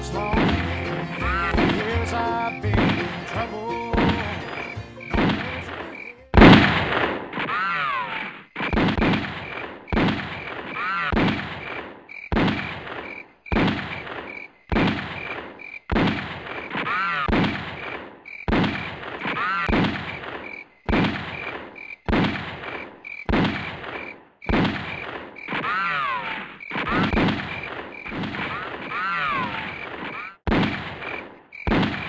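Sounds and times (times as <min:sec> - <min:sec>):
music: 0:00.0 - 0:05.9
gunshots with ringing echo: 0:00.2 - 0:32.0.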